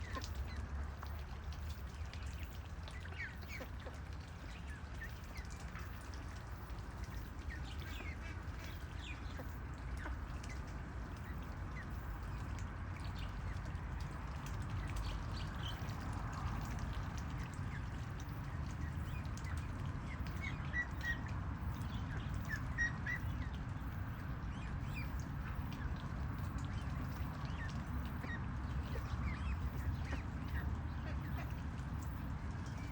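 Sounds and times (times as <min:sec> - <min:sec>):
low background hum: 0:00.0 - 0:32.9
ducks calling: 0:17.8 - 0:32.9.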